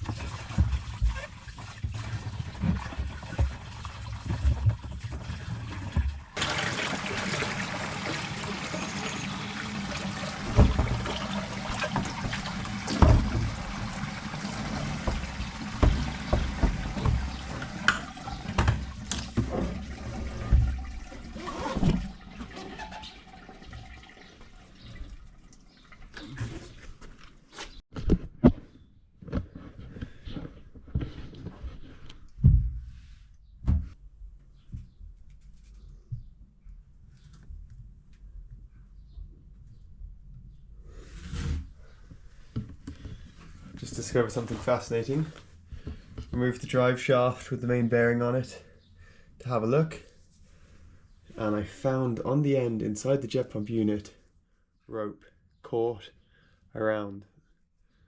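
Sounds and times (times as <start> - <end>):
water running and splashing: 0.0 - 26.8
plastic tank knocking: 9.7 - 20.9.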